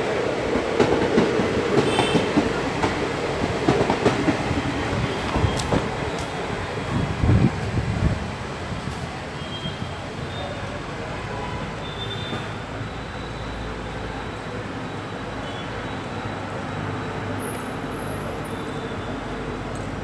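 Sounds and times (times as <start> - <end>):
diesel train moving away: 0.0 - 11.2.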